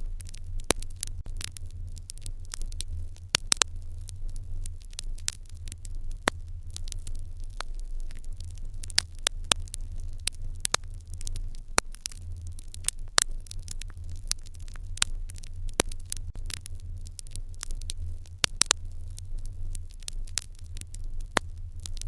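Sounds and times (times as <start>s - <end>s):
low steady rumble: 0.0s - 22.0s
wood fire crackling and popping: 0.0s - 22.0s.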